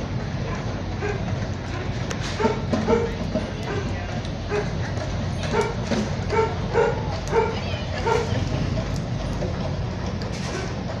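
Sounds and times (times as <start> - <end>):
dog barking: 0.5 - 1.2, 4.5 - 4.8, 5.5 - 8.3
low rumble: 4.9 - 10.6.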